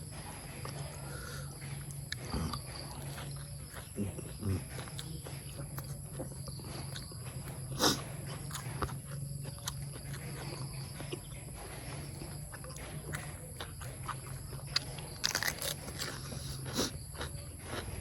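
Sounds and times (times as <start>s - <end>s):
chewing and wet mouth sounds: 0.0s - 18.0s
steady low hum: 0.0s - 18.0s.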